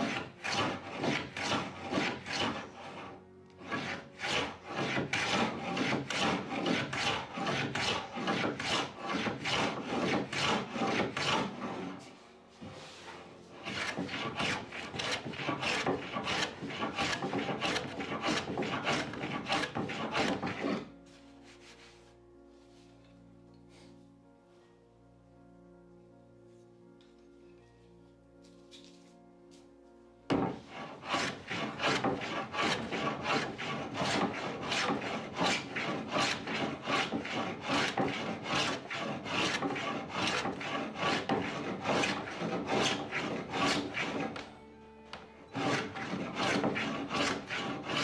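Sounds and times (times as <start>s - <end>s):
hand sanding wooden door: 3.6s - 12.0s, 12.8s - 20.9s, 30.4s - 44.4s, 45.6s - 48.0s.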